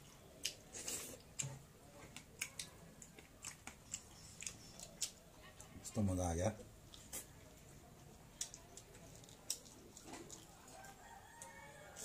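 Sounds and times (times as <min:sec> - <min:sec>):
chewing and wet mouth clicks: 0:00.4 - 0:05.7, 0:08.4 - 0:10.8.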